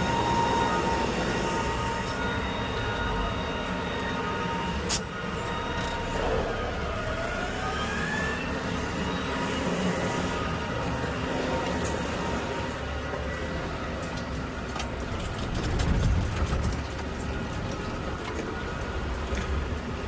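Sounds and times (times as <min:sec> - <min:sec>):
rising whine: 0:00.0 - 0:15.3
garbage truck engine rumble: 0:00.0 - 0:20.0.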